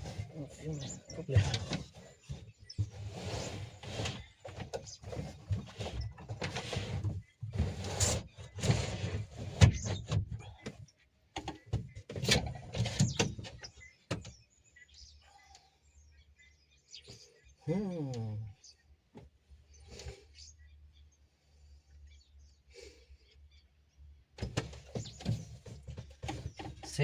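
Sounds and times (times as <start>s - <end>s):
fridge scraping and rubbing: 0.0s - 10.8s, 11.4s - 13.8s, 24.4s - 27.0s.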